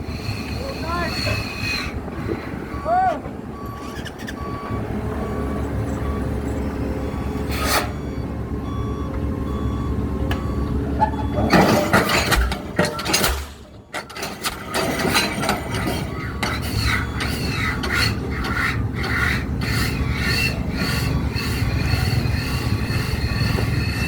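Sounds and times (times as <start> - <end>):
construction machinery engine rumble: 0.0 - 24.0
clattering metal noise: 11.0 - 21.1.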